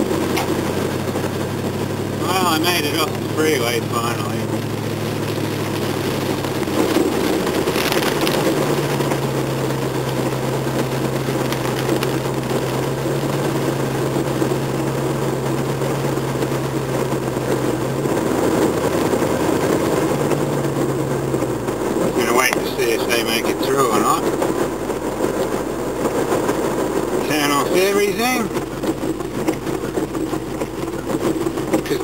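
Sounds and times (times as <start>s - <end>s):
car engine driving: 0.0s - 32.0s.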